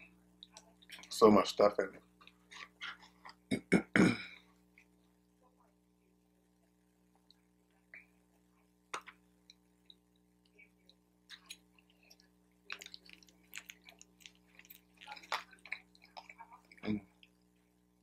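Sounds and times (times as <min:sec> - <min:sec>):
person chewing noodles: 0:09.0 - 0:17.8.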